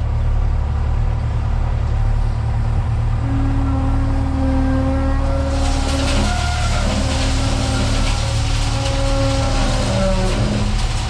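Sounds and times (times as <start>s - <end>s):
heavy machinery engine humming: 0.0s - 11.0s.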